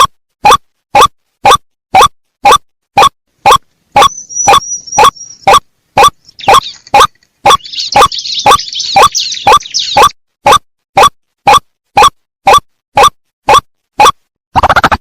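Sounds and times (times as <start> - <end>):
short rising bird calls: 4.0 - 10.2.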